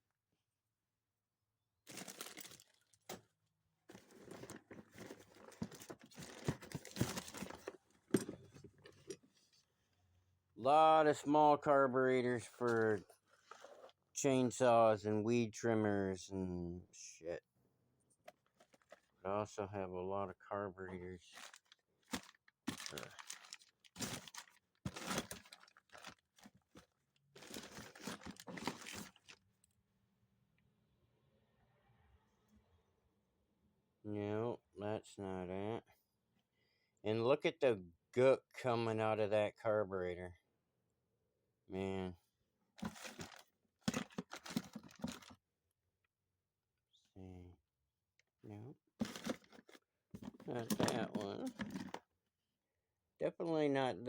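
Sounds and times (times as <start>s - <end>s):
plastic bag rustling: 1.9s - 3.0s, 3.9s - 9.2s, 21.3s - 29.4s, 42.8s - 45.3s, 49.0s - 52.0s
metal parts rummaged through: 3.9s - 9.2s, 21.4s - 26.2s, 27.4s - 29.3s, 42.8s - 45.3s, 49.0s - 52.0s.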